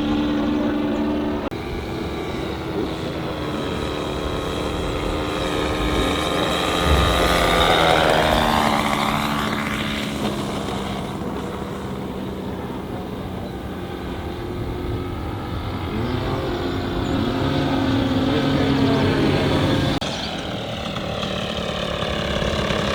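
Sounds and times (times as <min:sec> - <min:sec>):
model airplane engine flying past: 0:00.0 - 0:22.9.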